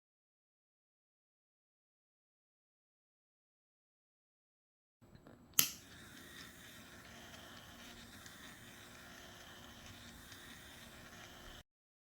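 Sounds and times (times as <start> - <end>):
fan motor whirring: 5.5 - 11.6.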